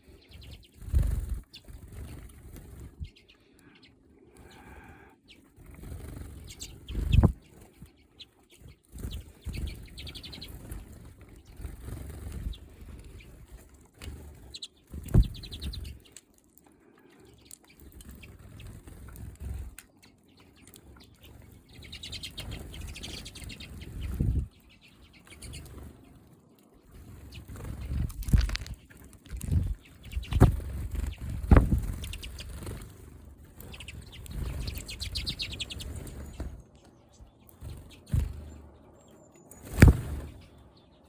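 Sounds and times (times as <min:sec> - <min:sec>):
wings fluttering: 0:00.0 - 0:16.4, 0:17.1 - 0:40.8
high bird chirps: 0:06.4 - 0:10.8, 0:19.9 - 0:26.2, 0:33.6 - 0:41.0.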